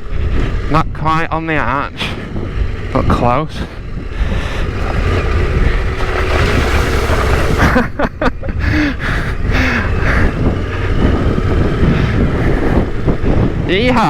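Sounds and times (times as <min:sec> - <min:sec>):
motorcycle engine climbing: 0:00.0 - 0:14.0
wind buffeting microphone: 0:00.0 - 0:14.0
bike hitting rocks: 0:04.6 - 0:07.8.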